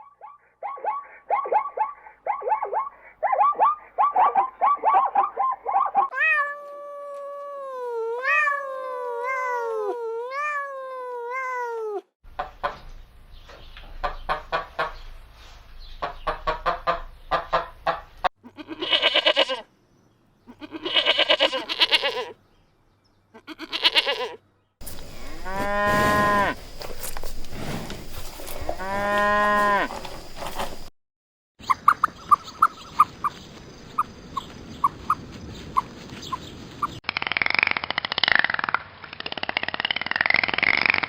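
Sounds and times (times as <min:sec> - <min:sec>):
cat meowing: 0:06.1 - 0:12.1
farm animal calls: 0:16.0 - 0:19.7, 0:20.5 - 0:22.4, 0:23.3 - 0:30.9.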